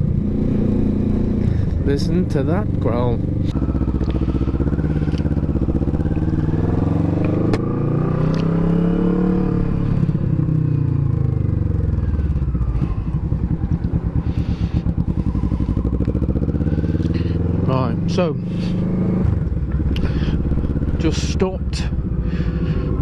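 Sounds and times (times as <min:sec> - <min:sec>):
motorcycle engine growling: 0:00.0 - 0:23.0.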